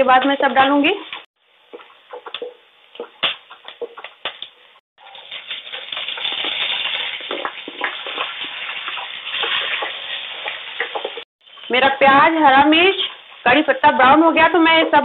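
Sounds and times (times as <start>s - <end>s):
vegetables sizzling in oil: 5.0s - 14.6s.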